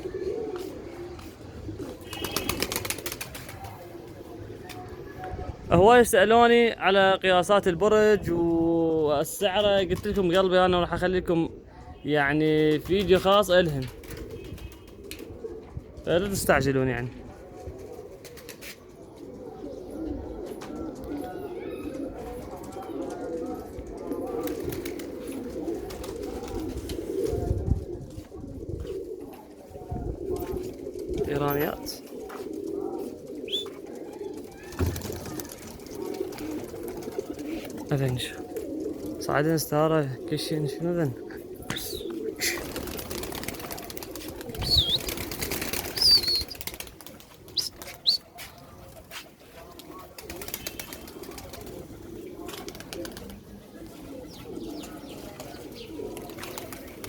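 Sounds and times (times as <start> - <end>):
pigeons cooing: 0.0 - 57.0
wings flapping and clattering: 0.5 - 4.9, 9.9 - 10.3, 12.6 - 15.3, 17.8 - 18.8, 22.2 - 28.3, 30.2 - 39.3, 41.7 - 53.6, 55.2 - 57.0.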